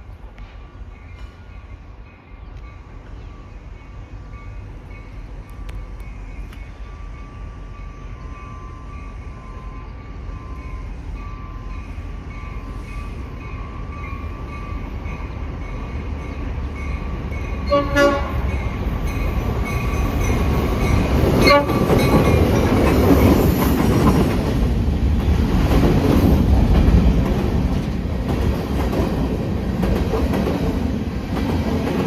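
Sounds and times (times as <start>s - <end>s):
train rumbling: 0.0s - 32.0s
train horn blast: 17.6s - 18.6s, 21.4s - 22.1s.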